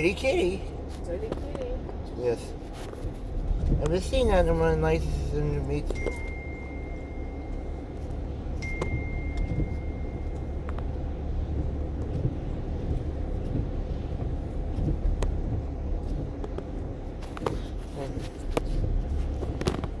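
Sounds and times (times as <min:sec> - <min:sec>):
low vehicle rumble: 0:00.0 - 0:20.0
thin high tone: 0:05.9 - 0:08.0, 0:08.6 - 0:10.4.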